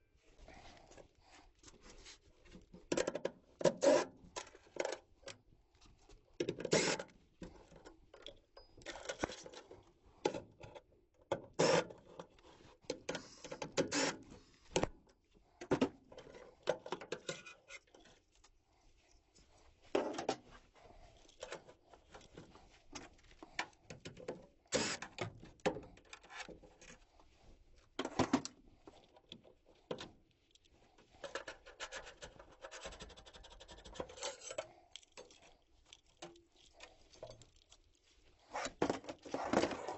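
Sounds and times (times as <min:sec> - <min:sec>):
tools clicking and scraping on metal: 0:16.2 - 0:18.2, 0:30.6 - 0:37.8.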